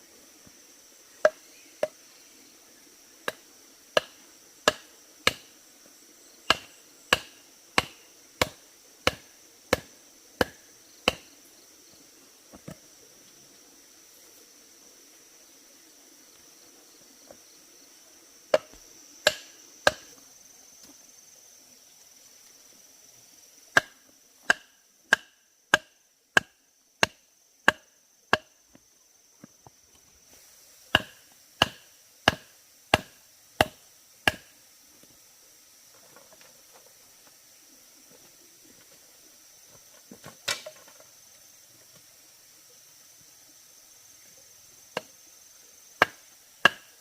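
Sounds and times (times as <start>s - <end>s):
insects buzzing: 0.0s - 47.0s
tool striking wood: 4.0s - 5.5s, 6.5s - 11.3s, 18.5s - 20.1s, 23.8s - 28.5s, 30.9s - 34.5s, 46.0s - 46.9s.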